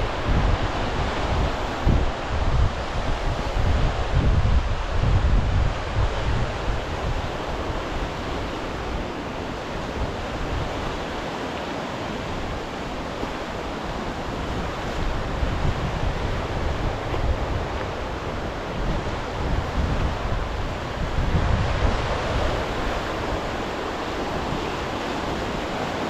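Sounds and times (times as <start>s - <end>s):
waves breaking on shore: 0.0s - 26.0s
wind buffeting microphone: 0.0s - 26.0s.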